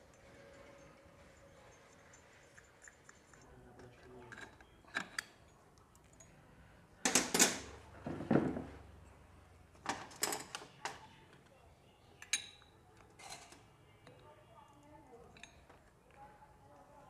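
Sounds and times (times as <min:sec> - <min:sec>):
metal parts and tools clinking: 0:00.0 - 0:06.4, 0:09.9 - 0:11.0.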